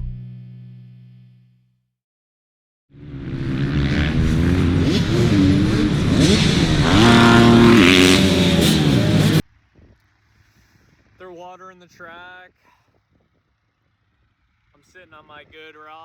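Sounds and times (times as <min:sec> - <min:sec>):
dirt bike engines revving: 0:03.0 - 0:09.4.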